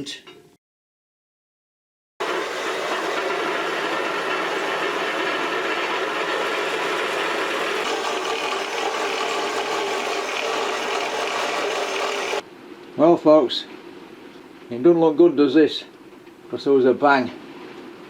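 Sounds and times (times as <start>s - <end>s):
bandsaw cutting metal: 2.2s - 12.4s.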